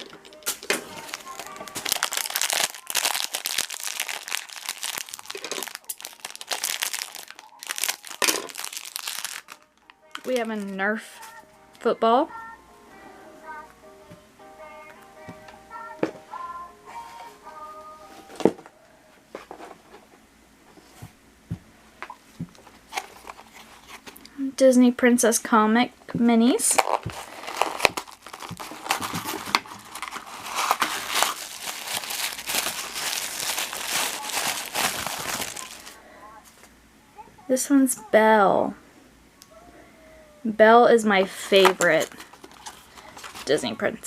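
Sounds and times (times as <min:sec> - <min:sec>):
plastic packaging crinkling: 0:00.0 - 0:11.4, 0:22.5 - 0:24.3, 0:26.6 - 0:36.0, 0:41.5 - 0:43.7.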